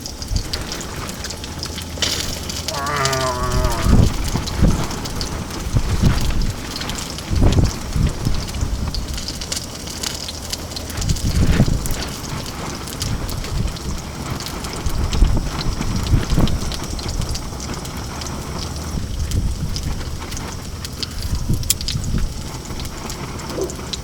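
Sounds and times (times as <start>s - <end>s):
wind gusting against microphone: 0.2s - 17.6s.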